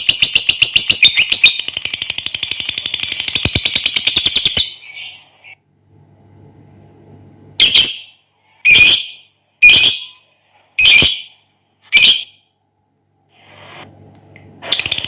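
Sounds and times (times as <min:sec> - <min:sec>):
lovebird high-pitched calls: 0:00.0 - 0:05.6, 0:07.6 - 0:10.2, 0:10.8 - 0:12.4.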